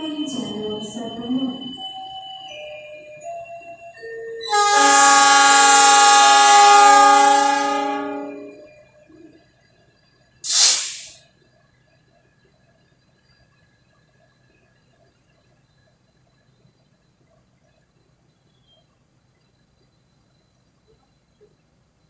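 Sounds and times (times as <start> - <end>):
train horn chord: 4.4 - 8.9
short hiss: 10.4 - 11.2.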